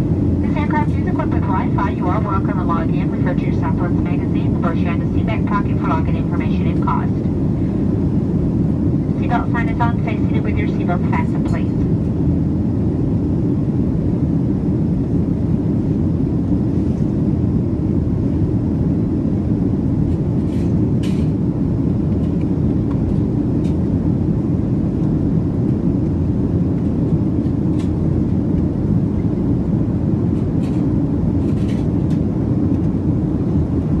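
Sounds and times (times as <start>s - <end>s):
airplane cabin roar: 0.0s - 34.0s.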